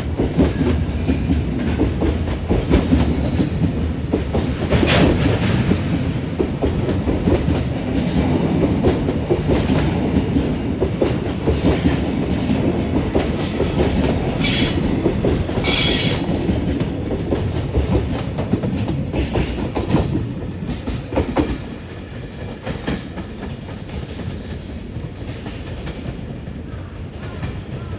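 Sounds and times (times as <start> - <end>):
freight train wheels clattering: 0.0 - 27.9
high wheel squeals: 15.6 - 16.3.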